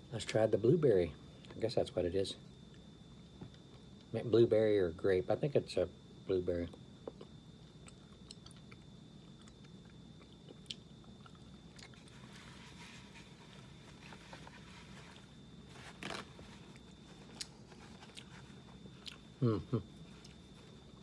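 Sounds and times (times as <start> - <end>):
faint steady hum: 0.0 - 21.0
person chewing: 7.1 - 12.1, 16.1 - 20.5
high whine: 10.4 - 21.0.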